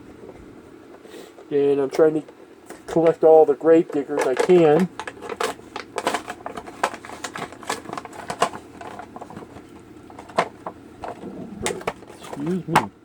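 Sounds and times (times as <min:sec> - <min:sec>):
packaging crinkling and clicking: 0:03.9 - 0:12.6
packaging snapping: 0:03.9 - 0:12.6.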